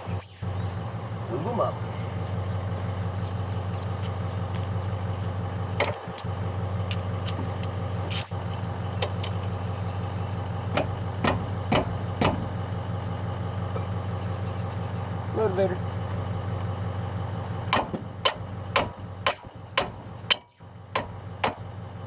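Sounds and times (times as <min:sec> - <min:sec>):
low mechanical hum: 0:00.0 - 0:22.0
metal clicks and knocks: 0:08.4 - 0:09.5, 0:10.7 - 0:12.6.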